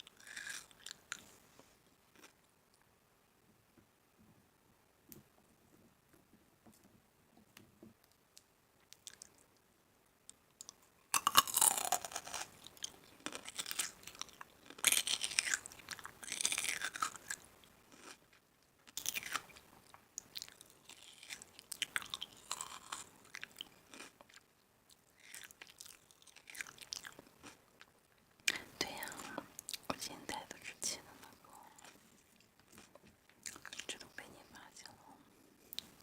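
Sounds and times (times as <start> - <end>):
chewing and crunching food: 0.0 - 1.4, 2.0 - 2.5, 8.8 - 9.5, 10.6 - 35.0.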